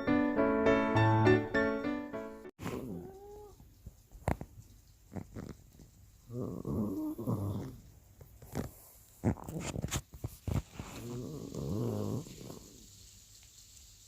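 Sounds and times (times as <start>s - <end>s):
dog snoring: 2.6s - 3.5s, 5.1s - 5.6s, 6.3s - 12.8s.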